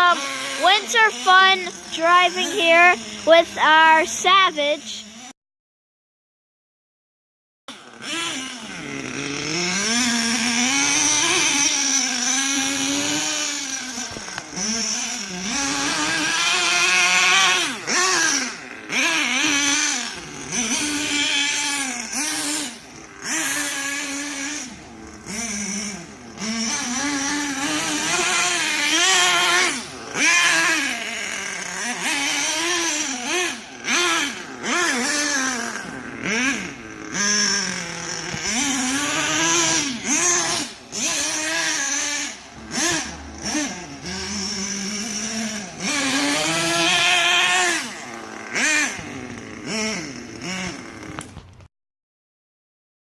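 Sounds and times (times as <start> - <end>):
small nitro engine revving: 0.0 - 5.4, 7.7 - 51.7.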